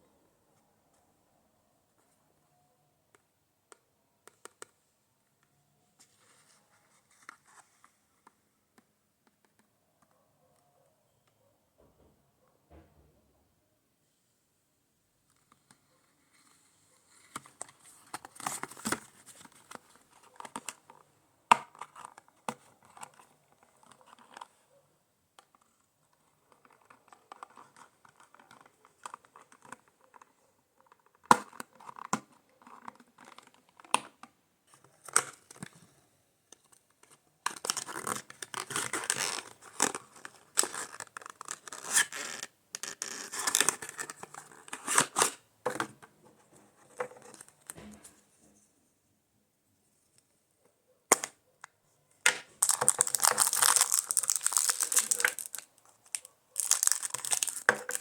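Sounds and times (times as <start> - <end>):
cardboard and plastic crinkling: 52.4 - 58.0.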